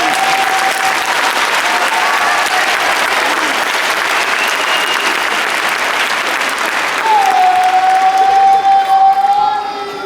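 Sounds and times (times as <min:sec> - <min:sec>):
audience applauding: 0:00.0 - 0:09.5
faint whistles or voices: 0:04.3 - 0:05.3.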